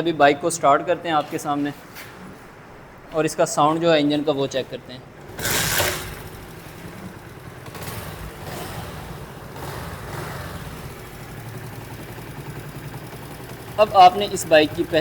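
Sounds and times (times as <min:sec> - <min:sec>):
motorcycle engine starting and idling: 0:05.1 - 0:15.0.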